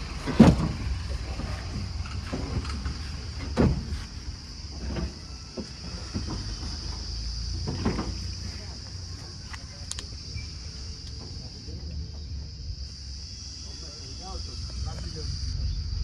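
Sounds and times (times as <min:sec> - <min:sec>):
knocks and clunks: 0:00.0 - 0:08.9
truck engine rumbling: 0:00.0 - 0:16.0.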